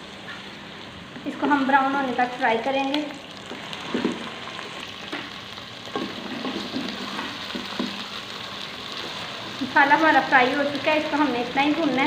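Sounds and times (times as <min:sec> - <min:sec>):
paste sizzling in hot oil: 0:02.1 - 0:12.0
spoon scraping and knocking pan: 0:05.9 - 0:08.0.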